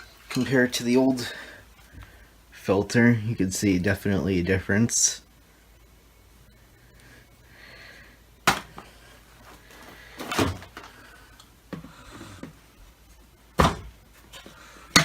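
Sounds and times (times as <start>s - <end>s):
plastic parts knocking and clunking: 9.8s - 11.0s.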